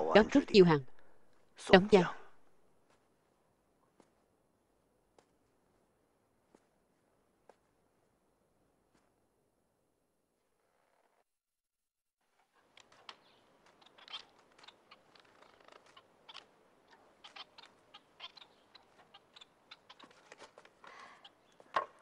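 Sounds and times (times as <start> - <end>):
small bird chirping faintly: 12.2 - 22.0.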